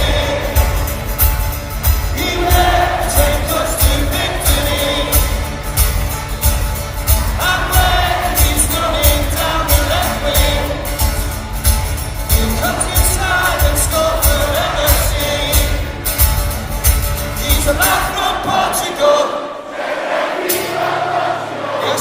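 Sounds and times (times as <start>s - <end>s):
person singing pop song: 0.0s - 1.1s, 2.0s - 5.6s, 7.3s - 11.2s, 12.3s - 16.0s
backing track with drum beat: 0.0s - 18.6s.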